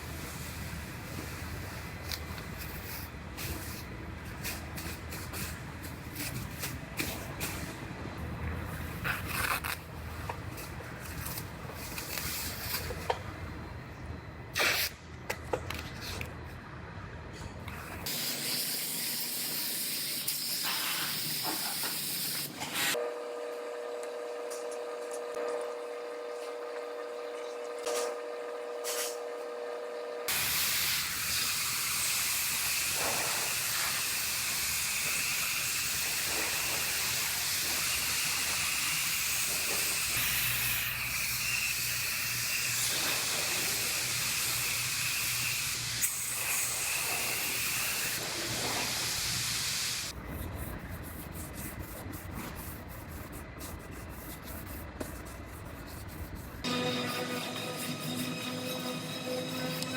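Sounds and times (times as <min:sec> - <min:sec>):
compressed air hissing: 0:18.1 - 0:23.0.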